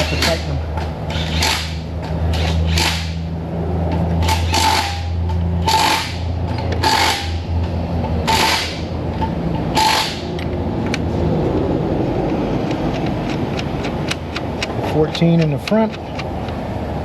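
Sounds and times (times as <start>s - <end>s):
steady shop hum: 0.0s - 17.0s
power ratchet bursts: 1.1s - 3.3s, 4.2s - 7.5s, 8.2s - 8.9s, 9.7s - 10.4s.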